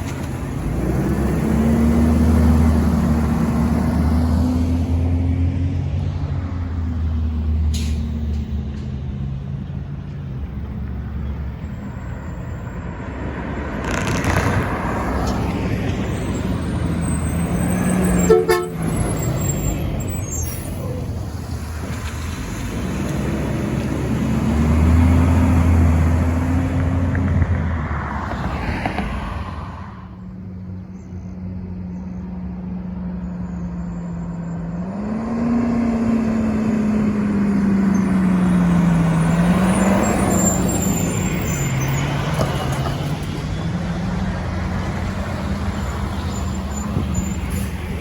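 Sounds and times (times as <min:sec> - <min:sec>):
garbage trucks driving past: 0:00.0 - 0:48.0
horn toot: 0:17.6 - 0:19.3.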